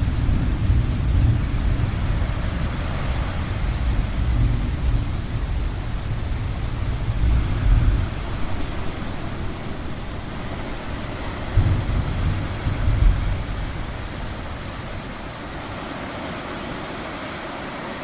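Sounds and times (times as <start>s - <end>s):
rain: 0.0s - 18.0s
distant thunder rumbling: 0.1s - 15.8s
ocean surf: 1.6s - 18.0s.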